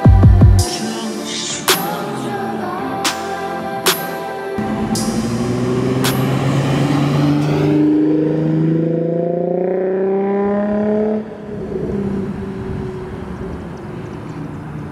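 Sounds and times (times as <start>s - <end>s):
car engine accelerating: 4.6s - 14.9s.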